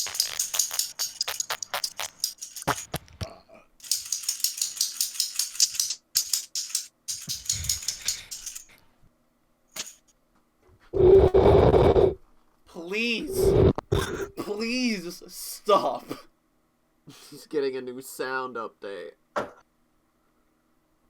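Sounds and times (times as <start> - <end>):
rapid clicking taps on hard object: 0.0 - 3.0, 3.8 - 8.6.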